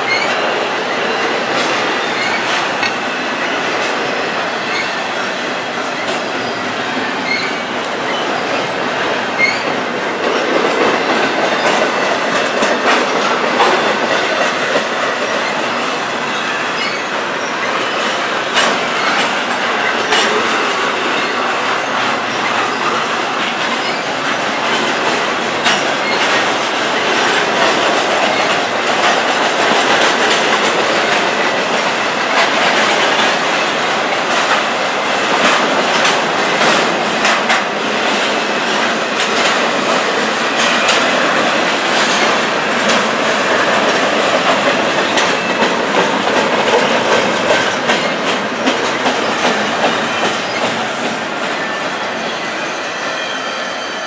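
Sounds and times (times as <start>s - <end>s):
train wheels rumbling on rail: 0.0s - 54.0s
wheels clicking over track: 7.2s - 51.4s
faint high wheel squeal: 51.6s - 54.0s.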